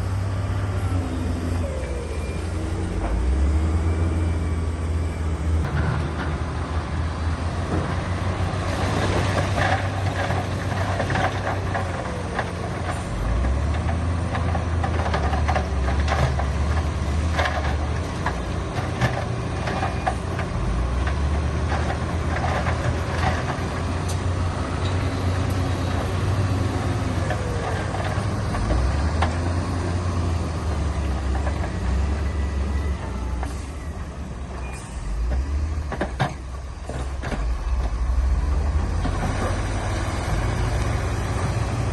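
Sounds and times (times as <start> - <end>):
heavy diesel engine running: 0.0 - 41.9
knocks and clatter: 8.7 - 24.3, 35.3 - 40.0.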